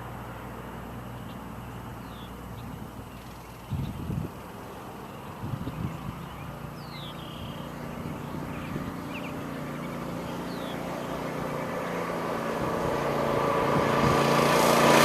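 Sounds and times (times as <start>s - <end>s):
faint bird chirps: 1.1s - 11.9s
mini bike engine running: 5.4s - 15.0s.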